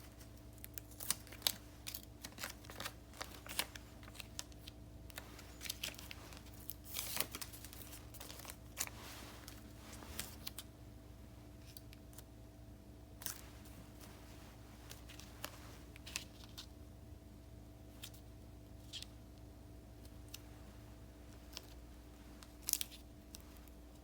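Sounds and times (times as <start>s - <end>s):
paper rustling and crinkling: 0.0s - 10.7s, 13.2s - 16.7s, 21.3s - 24.0s
faint steady hum: 0.0s - 24.0s.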